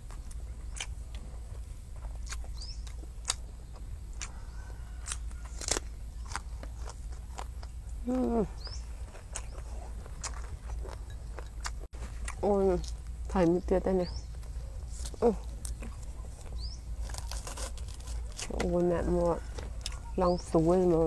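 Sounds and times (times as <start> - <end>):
person chewing food: 0.0 - 13.2, 14.3 - 18.6, 19.4 - 20.2.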